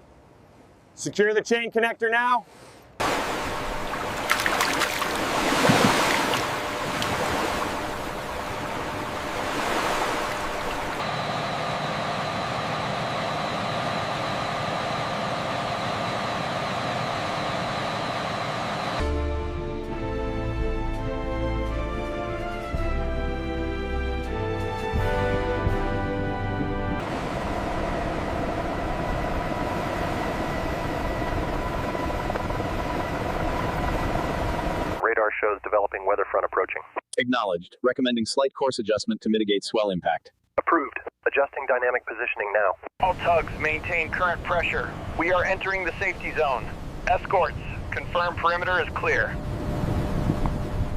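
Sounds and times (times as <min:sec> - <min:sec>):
sea water washing: 0:03.0 - 0:18.8
machinery drone with tones: 0:03.0 - 0:23.2, 0:25.0 - 0:35.0
faint held tones: 0:10.0 - 0:19.0.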